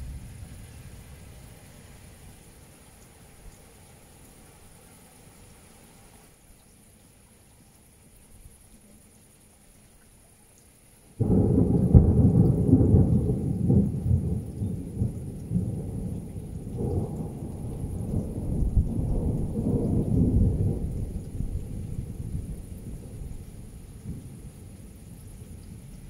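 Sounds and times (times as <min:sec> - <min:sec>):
thunder rumbling: 0:00.0 - 0:01.6, 0:11.2 - 0:26.0.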